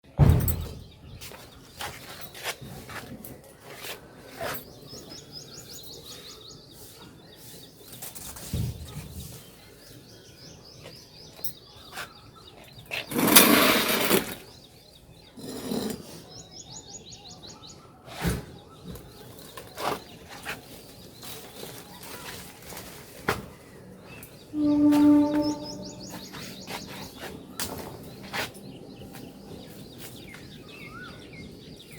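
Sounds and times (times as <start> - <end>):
small birds chirping: 0.6 - 13.4, 14.2 - 31.9
loud rustling and scraping: 12.9 - 14.6.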